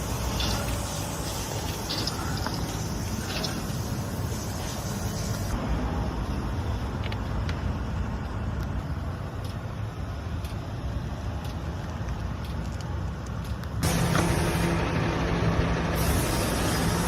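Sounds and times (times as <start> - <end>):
diesel engine idling: 13.5 - 17.0.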